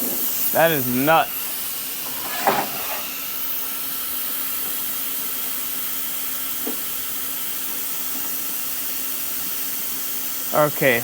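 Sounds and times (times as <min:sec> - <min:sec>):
plasma cutter hissing: 0:00.0 - 0:11.0.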